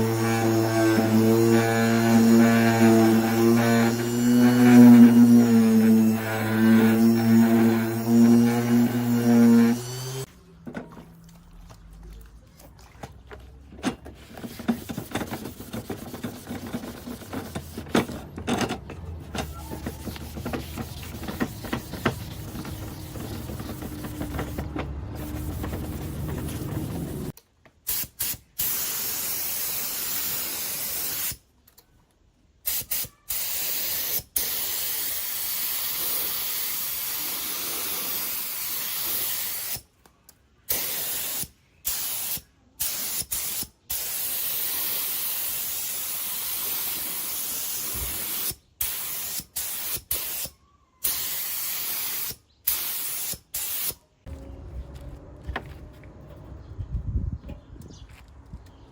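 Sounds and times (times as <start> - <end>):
compressed-air spray gun hissing: 20.0 - 27.3.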